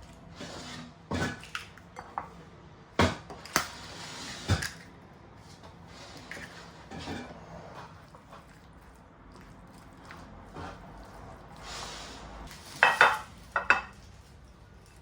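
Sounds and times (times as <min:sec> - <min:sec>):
dishes clinking: 0:12.8 - 0:14.0.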